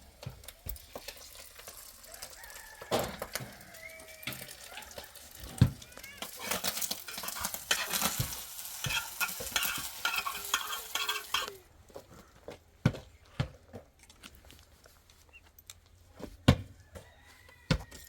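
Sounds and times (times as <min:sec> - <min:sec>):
sizzling crackly hiss: 0:00.0 - 0:11.7.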